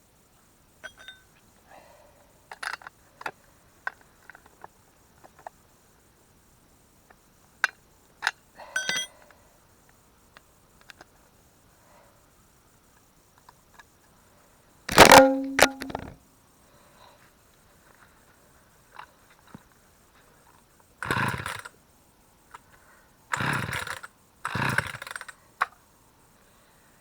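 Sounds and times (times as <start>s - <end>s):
chainsaw recoil starter pull: 14.9s - 16.1s, 23.4s - 25.3s.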